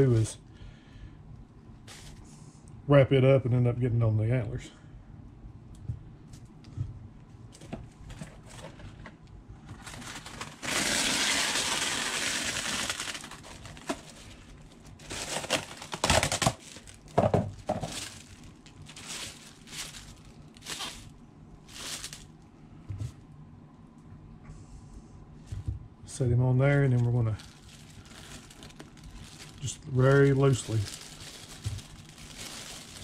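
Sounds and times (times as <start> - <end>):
paper crinkling: 1.9 - 2.2, 9.7 - 22.3, 26.9 - 33.0
wax paper rustling off roll: 9.7 - 21.1, 21.7 - 22.3, 26.9 - 33.0
paper tearing: 10.2 - 13.6.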